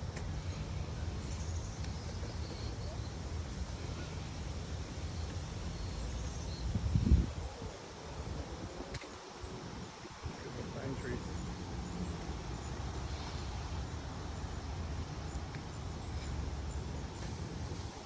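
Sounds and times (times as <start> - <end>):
wind buffeting microphone: 6.5 - 13.1.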